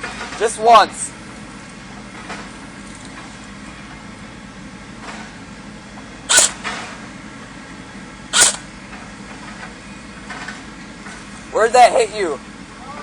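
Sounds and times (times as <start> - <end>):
airsoft rifle shots: 6.3 - 6.9, 8.3 - 8.7.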